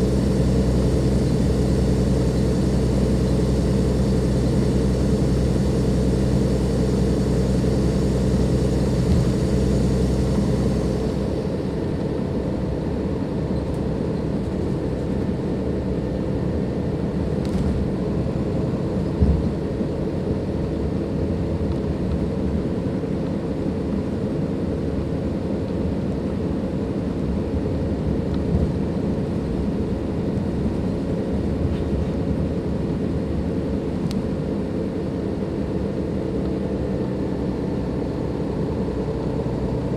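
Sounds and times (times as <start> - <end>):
high turbo whine: 0.0 - 15.1
diesel bus engine running: 0.0 - 21.6, 23.0 - 39.9.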